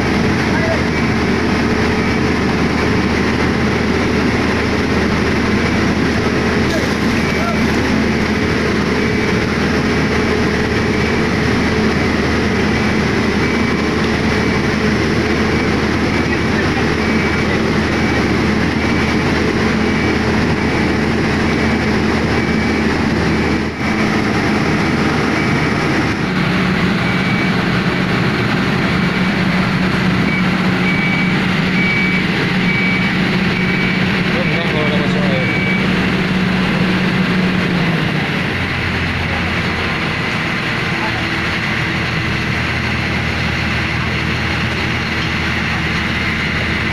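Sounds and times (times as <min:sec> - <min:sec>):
heavy diesel machinery running: 0:00.0 - 0:46.9
faint high warning beep: 0:13.3 - 0:14.6, 0:15.4 - 0:19.2, 0:27.0 - 0:27.6, 0:30.2 - 0:35.9.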